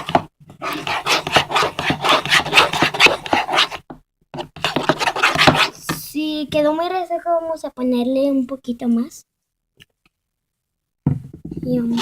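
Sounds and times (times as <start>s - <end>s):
utensil scraping container: 0.0s - 3.8s, 4.4s - 5.8s.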